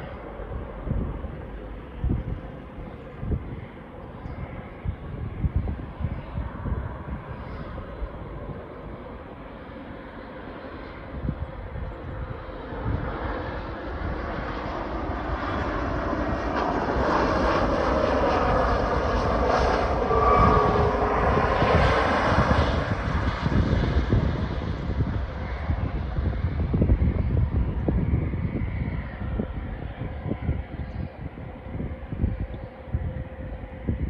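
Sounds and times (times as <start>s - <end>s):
jet engines rushing and whining: 0.0s - 34.0s
wind rumble on microphone: 0.0s - 34.0s.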